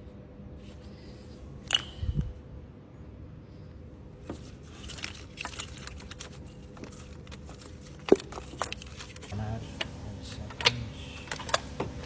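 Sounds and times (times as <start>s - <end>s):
clicks and rattles of engine parts: 4.3s - 9.3s.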